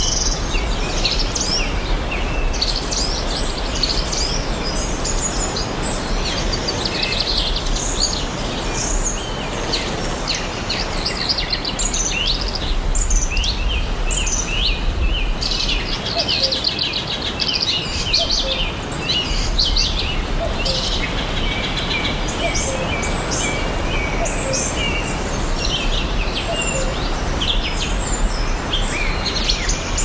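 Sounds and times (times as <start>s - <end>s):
songbirds chirping and singing: 0.0s - 30.0s
steady rushing background noise: 16.8s - 30.0s.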